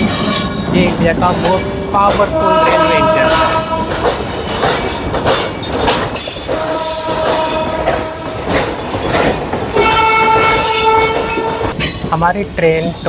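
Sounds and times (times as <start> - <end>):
train rumble: 0.0 - 13.0
steel wheel squeal: 1.4 - 3.6, 4.3 - 12.1
train horn: 2.3 - 4.0, 6.5 - 8.6, 9.7 - 11.7.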